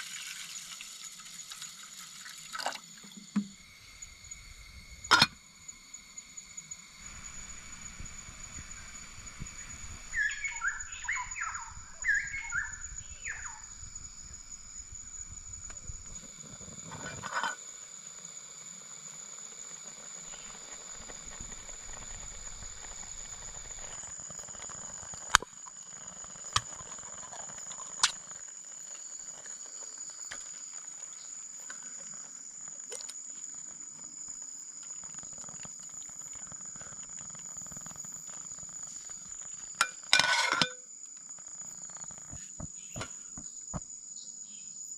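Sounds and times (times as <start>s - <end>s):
high-pitched insect drone: 0.0s - 44.9s
bird chirping: 9.6s - 14.0s.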